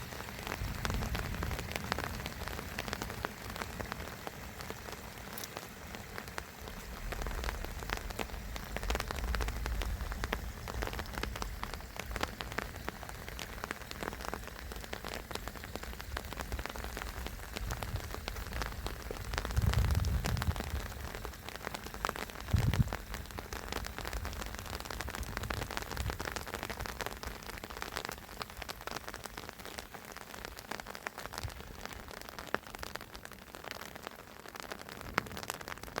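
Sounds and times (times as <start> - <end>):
rain pattering: 0.0 - 36.0
low rumble: 17.6 - 21.1.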